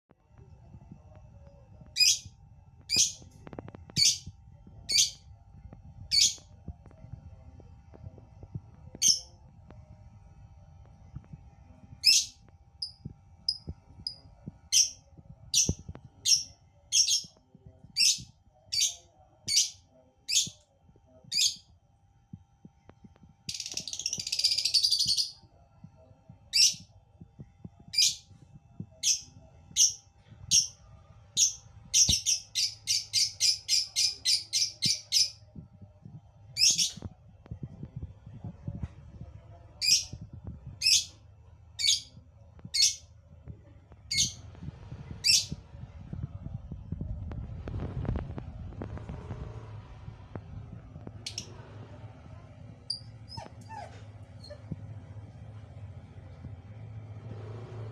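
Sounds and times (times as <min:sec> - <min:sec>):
lovebird chirping: 0:03.9 - 0:04.3, 0:04.9 - 0:05.2, 0:23.5 - 0:25.4, 0:31.4 - 0:35.4, 0:52.9 - 0:53.5.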